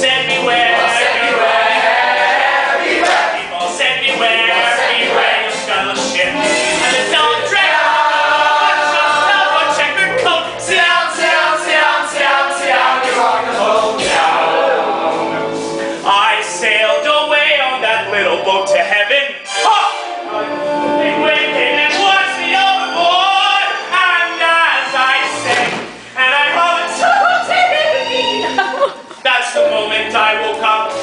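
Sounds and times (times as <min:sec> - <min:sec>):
chorus singing show tune: 0:00.0 - 0:31.0.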